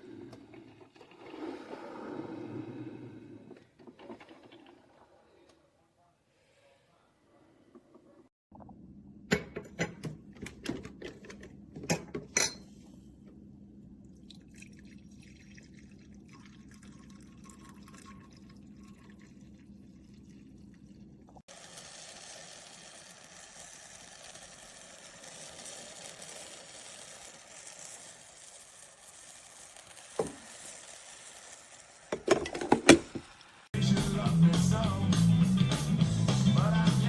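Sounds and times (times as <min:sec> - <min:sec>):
coffee maker trickling and hissing: 0:00.0 - 0:05.8, 0:14.1 - 0:33.8.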